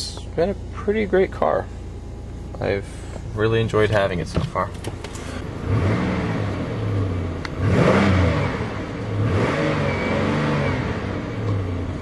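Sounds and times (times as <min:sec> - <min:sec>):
engine revving: 0:05.0 - 0:12.0.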